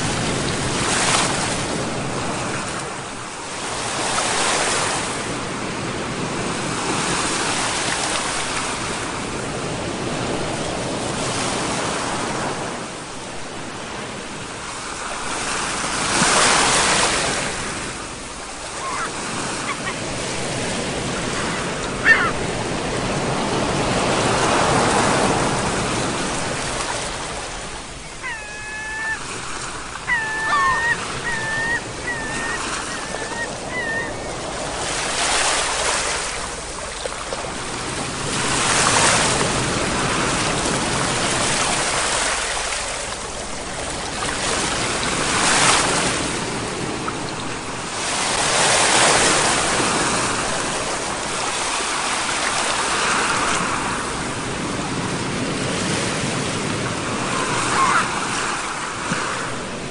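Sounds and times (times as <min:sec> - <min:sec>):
sea waves breaking: 0:00.0 - 0:59.9
bird short cries: 0:22.0 - 0:22.4, 0:28.2 - 0:29.3, 0:30.1 - 0:34.3.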